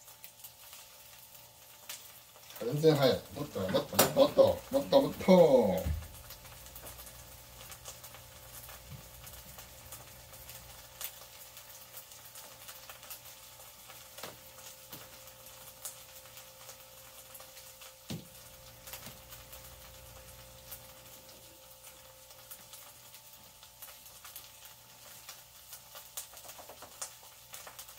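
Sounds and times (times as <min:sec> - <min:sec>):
tofu frying in a pan: 0:00.0 - 0:27.9.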